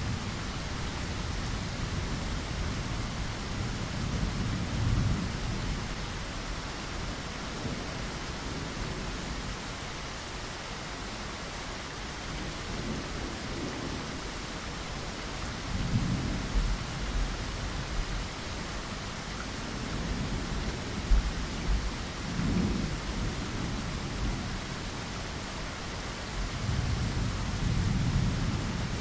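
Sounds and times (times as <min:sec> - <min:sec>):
low thunder rumbling: 0:00.0 - 0:06.4, 0:15.0 - 0:18.8, 0:19.5 - 0:25.6, 0:26.4 - 0:29.0
rain falling: 0:00.0 - 0:29.0.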